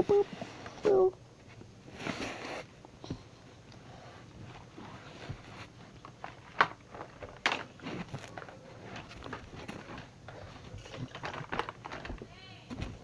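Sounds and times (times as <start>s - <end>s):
puppet handling knocks and rustling: 4.4s - 13.0s.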